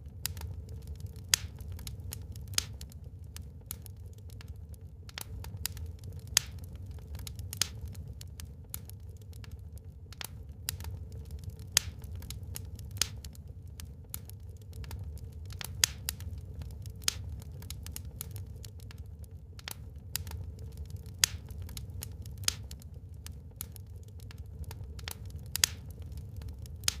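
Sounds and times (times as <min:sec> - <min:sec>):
low fire rumble: 0:00.0 - 0:27.0
wood fire crackling and popping: 0:00.0 - 0:27.0.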